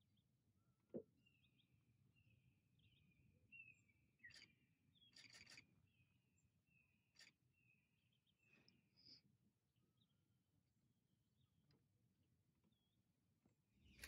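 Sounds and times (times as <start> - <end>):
faint high bird chirps: 0.6 - 9.3, 13.8 - 14.0.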